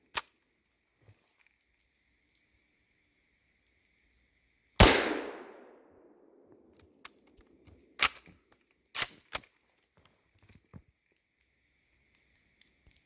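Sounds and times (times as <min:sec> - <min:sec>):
rifle shot: 0:04.8 - 0:05.9.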